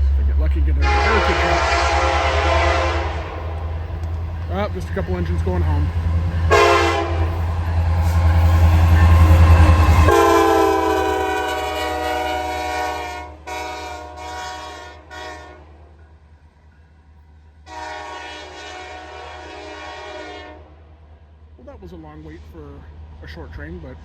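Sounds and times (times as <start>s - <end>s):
locomotive engines deep rumble: 0.0s - 15.2s
locomotive air horn blasts: 0.8s - 3.8s, 6.5s - 7.6s, 8.2s - 15.8s, 17.7s - 20.8s.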